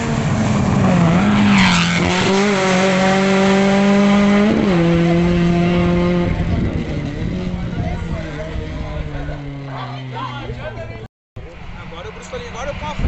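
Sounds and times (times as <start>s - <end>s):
rally car engine at high revs: 0.0s - 10.4s.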